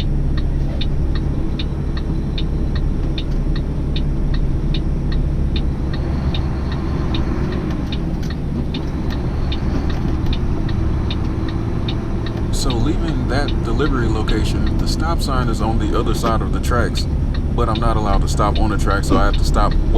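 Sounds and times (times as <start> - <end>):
regular ticking: 0.0 - 19.9
truck engine humming: 0.0 - 19.9.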